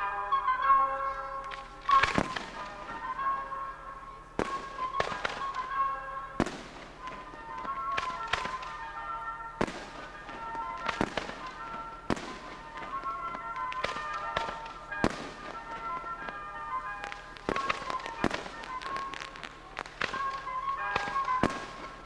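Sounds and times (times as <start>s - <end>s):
fireworks bangs: 0.0s - 22.0s
music playing: 0.0s - 22.0s.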